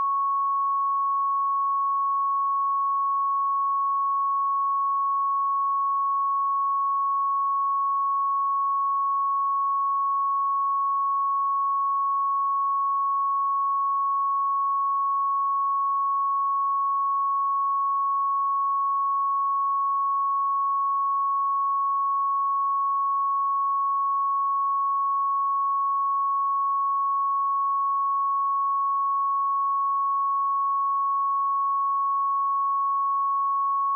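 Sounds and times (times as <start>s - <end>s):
sine wave test tone: 0.0s - 33.9s.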